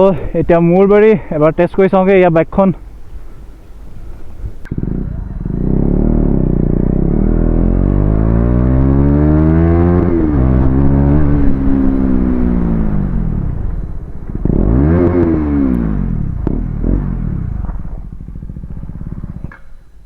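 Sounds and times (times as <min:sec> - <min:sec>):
motorcycle engine accelerating: 0:04.0 - 0:20.0.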